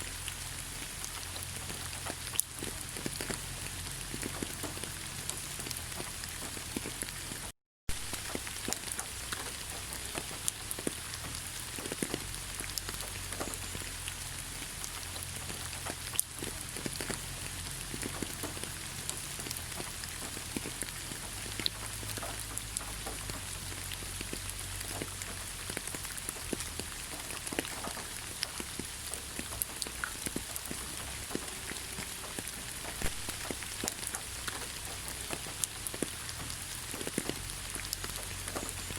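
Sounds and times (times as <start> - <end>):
rain hiss: 0.0 - 38.9
raindrops ticking: 0.0 - 38.9.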